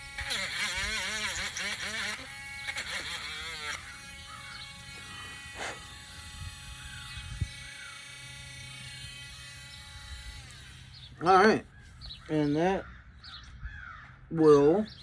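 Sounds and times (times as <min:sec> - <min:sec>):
electric sander buzzing: 0:00.0 - 0:11.5.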